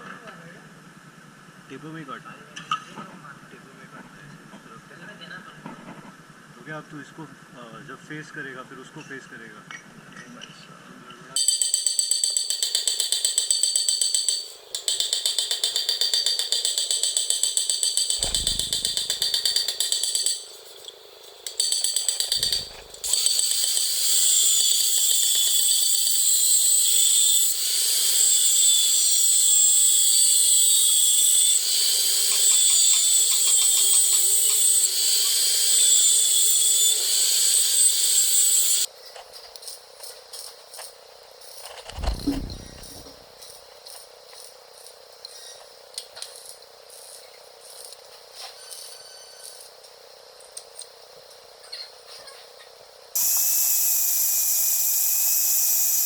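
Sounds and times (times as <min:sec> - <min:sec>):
power tool cutting metal: 0:11.4 - 0:20.4, 0:21.5 - 0:38.9, 0:53.2 - 0:56.0.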